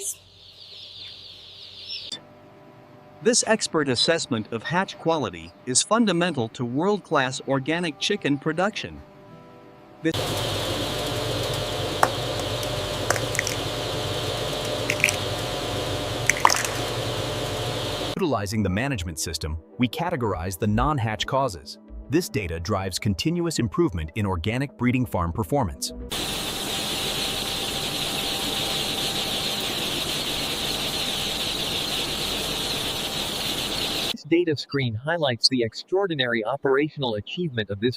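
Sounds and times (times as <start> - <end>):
chicks peeping: 0.0 - 2.2, 26.1 - 34.2
machinery hum with hiss: 10.1 - 18.2, 26.1 - 34.2.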